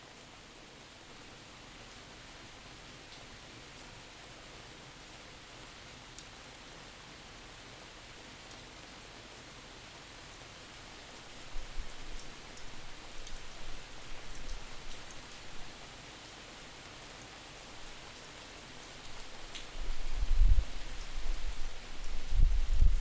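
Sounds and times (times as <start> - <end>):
steady rain falling: 0.0 - 23.0
wind buffeting microphone: 19.8 - 23.0.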